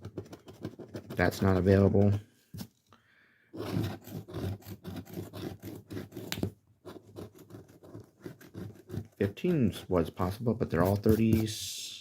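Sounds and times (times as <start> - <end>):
scratching lottery ticket: 3.6 - 9.4.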